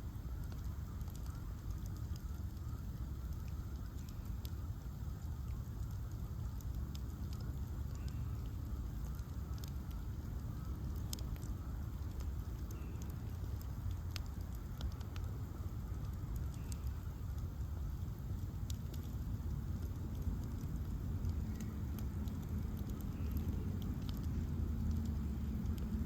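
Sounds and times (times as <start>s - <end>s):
bonfire rumble: 0.0s - 26.0s
fire crackles and pops: 0.0s - 26.0s.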